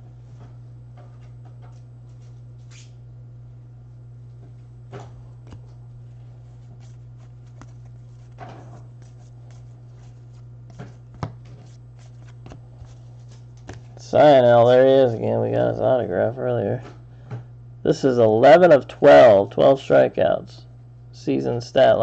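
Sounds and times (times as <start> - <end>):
steady low hum: 0.0 - 22.0
cards sliding against each other: 6.6 - 13.9.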